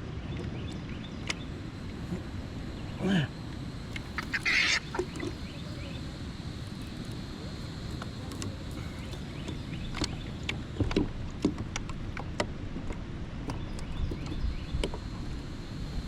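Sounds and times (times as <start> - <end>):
light clicks and knocks on kayak: 8.3 - 15.0.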